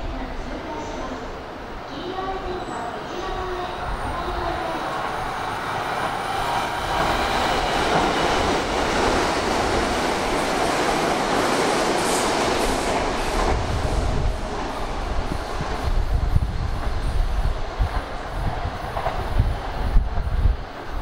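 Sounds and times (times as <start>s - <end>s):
electric train rumbling on track: 0.0s - 21.0s.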